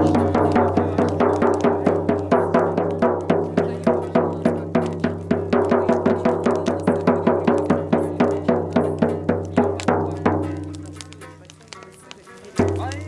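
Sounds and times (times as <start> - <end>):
drum beaten in fast rhythm: 0.0 - 13.0.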